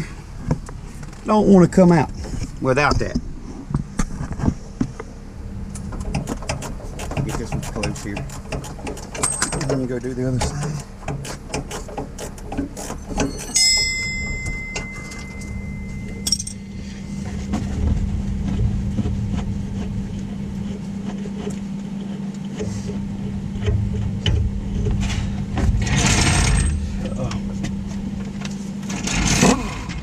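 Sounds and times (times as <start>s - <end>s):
steady low hum: 0.0s - 30.0s
hand tools clicking and clanking: 5.8s - 17.4s
metallic ring: 9.2s - 9.7s, 13.1s - 17.2s, 25.9s - 27.0s.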